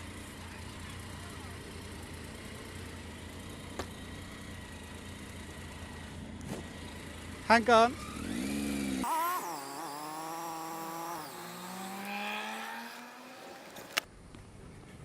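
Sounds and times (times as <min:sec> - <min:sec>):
vehicle engine accelerating: 0:00.0 - 0:14.1.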